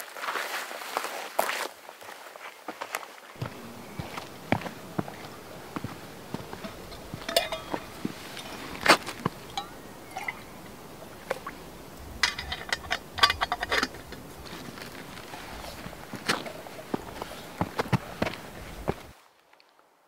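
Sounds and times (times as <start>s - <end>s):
ringing metallic clinks: 6.3s - 10.8s, 12.2s - 14.2s.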